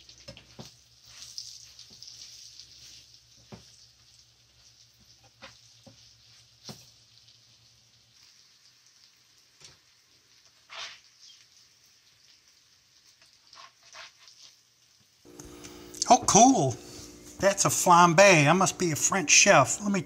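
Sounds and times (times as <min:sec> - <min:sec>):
faint sizzle in a pan: 0:00.0 - 0:20.0
plastic spatula scraping a pan: 0:10.7 - 0:11.1, 0:13.5 - 0:14.6.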